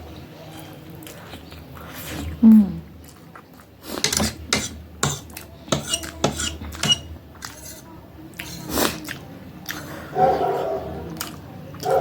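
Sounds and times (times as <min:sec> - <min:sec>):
fork clinking against a dish: 0:04.0 - 0:07.8.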